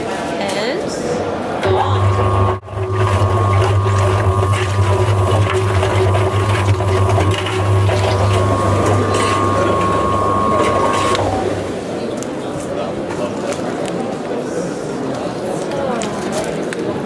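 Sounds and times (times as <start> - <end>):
machine motor humming and whining: 1.6 - 12.1.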